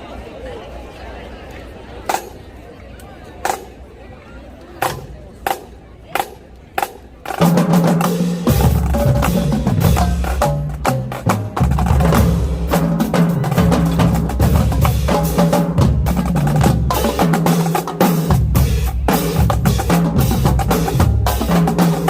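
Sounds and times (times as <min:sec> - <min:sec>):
marching bass drums: 0:04.8 - 0:22.0.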